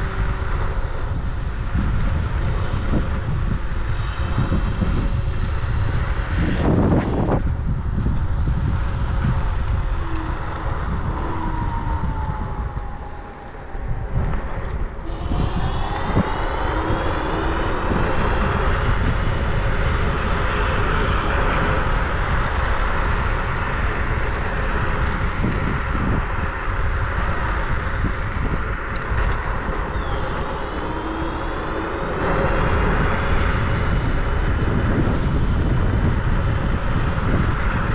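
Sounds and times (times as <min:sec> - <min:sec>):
wind buffeting microphone: 0:00.0 - 0:37.9
vehicle whine rising in pitch: 0:06.3 - 0:22.2, 0:27.6 - 0:35.6.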